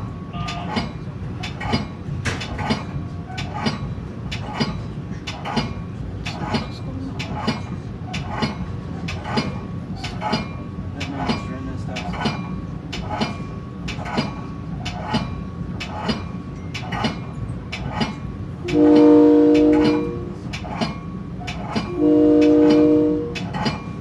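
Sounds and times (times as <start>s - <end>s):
train wheels clicking over rail joints: 0.0s - 24.0s
train air horn blasts: 18.6s - 20.6s, 21.8s - 23.7s.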